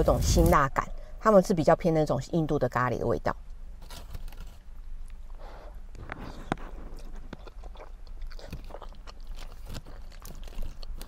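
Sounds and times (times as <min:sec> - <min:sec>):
person chewing noodles: 0:06.0 - 0:11.0.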